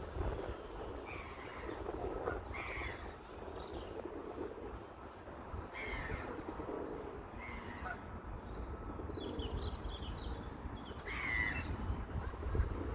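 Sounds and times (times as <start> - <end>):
wild birds calling: 10.8 - 11.8.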